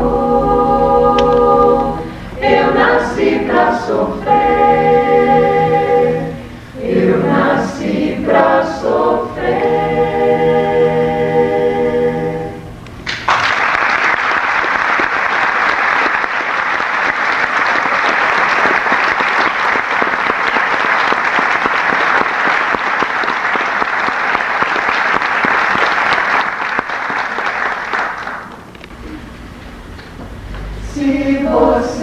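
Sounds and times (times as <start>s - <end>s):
audience applauding: 13.1s - 28.6s.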